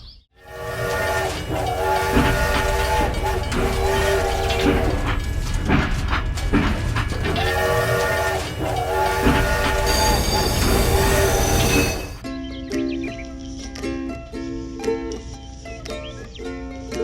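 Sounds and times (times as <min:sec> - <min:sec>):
multi-note horn blasts: 0:00.4 - 0:12.2
rattling clatter: 0:00.8 - 0:12.2
steady low rumble: 0:02.4 - 0:07.7.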